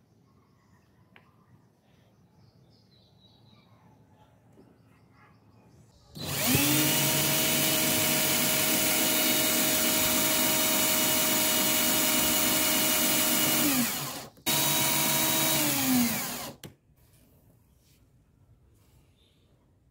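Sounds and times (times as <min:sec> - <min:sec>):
drill press motor whining: 0:06.2 - 0:16.6
drilling into wood: 0:06.2 - 0:16.7.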